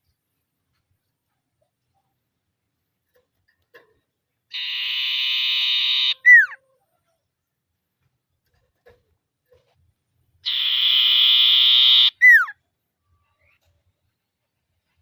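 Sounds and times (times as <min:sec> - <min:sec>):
bird buzzing trill call: 0:04.6 - 0:06.2, 0:10.5 - 0:12.4
bird whistle sliding down: 0:04.6 - 0:06.5, 0:10.5 - 0:12.5.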